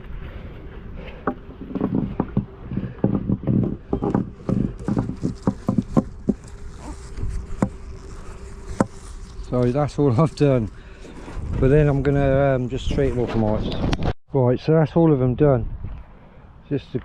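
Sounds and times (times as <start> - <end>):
honeybees buzzing: 1.0 - 11.2
hive equipment knocks and clatters: 1.2 - 6.7.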